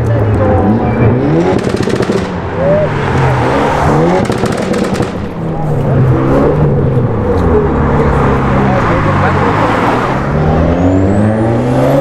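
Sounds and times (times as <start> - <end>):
car engine revving: 0.0 - 12.0
crackling exhaust pops: 4.2 - 5.4.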